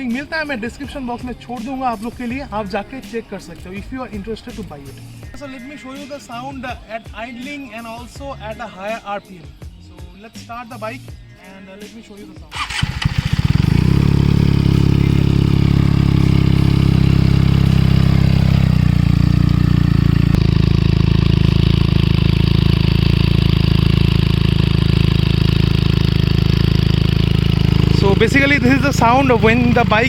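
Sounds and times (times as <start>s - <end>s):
motorcycle engine starting and idling: 12.5s - 30.0s.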